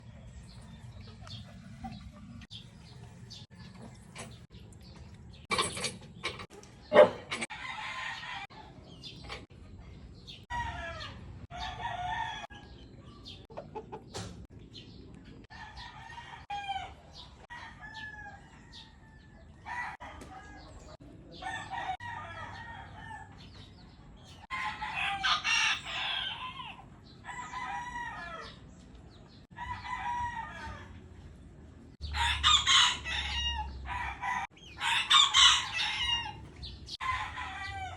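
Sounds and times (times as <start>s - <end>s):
sparrows chirping: 0.0s - 30.2s, 32.0s - 37.9s
chicken clucking: 0.1s - 4.4s, 13.0s - 14.4s.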